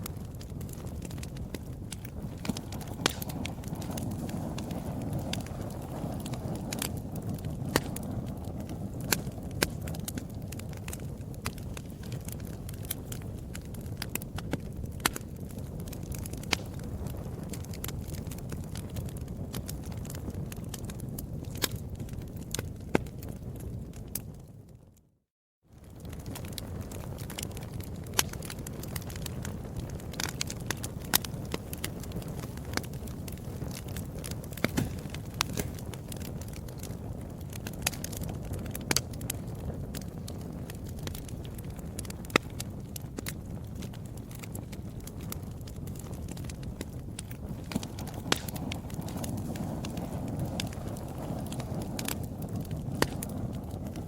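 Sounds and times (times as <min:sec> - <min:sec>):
wood fire crackling and popping: 0:00.0 - 0:25.1, 0:25.7 - 0:54.0
low rumble of burning: 0:00.0 - 0:54.0.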